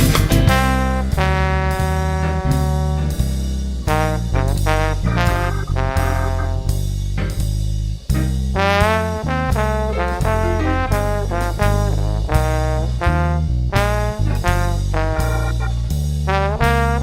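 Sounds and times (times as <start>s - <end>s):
ska horn section melody: 0.0s - 7.2s, 8.2s - 17.0s
bass and drums: 0.0s - 17.0s.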